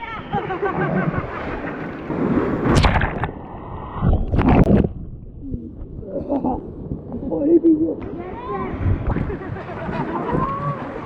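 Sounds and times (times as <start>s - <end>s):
wind buffeting microphone: 0.4s - 11.0s
river water rushing and splashing: 1.2s - 3.3s.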